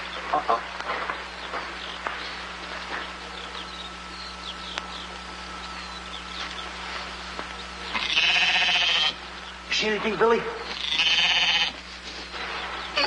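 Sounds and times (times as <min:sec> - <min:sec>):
birds chirping: 0:00.0 - 0:13.0
film soundtrack hiss and hum: 0:00.0 - 0:13.0
loud bleat-like call: 0:07.9 - 0:09.2, 0:10.7 - 0:11.8.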